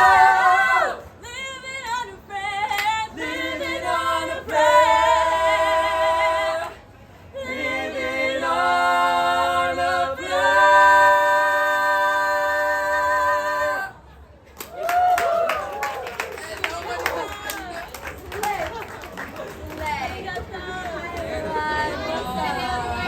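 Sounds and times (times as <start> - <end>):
a cappella group singing harmony: 0.0 - 14.1, 20.1 - 23.0.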